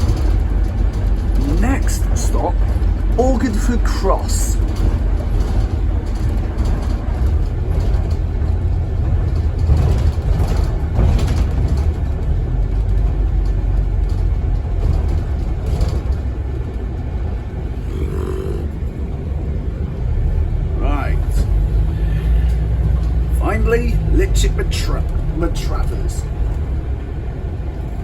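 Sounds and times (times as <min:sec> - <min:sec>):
bus engine rumble inside cabin: 0:00.0 - 0:28.0.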